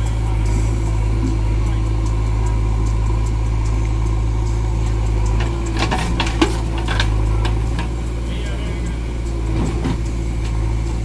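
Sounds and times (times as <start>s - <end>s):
diesel engine humming: 0.0s - 11.0s
sharp knocks and clanks: 5.3s - 11.0s.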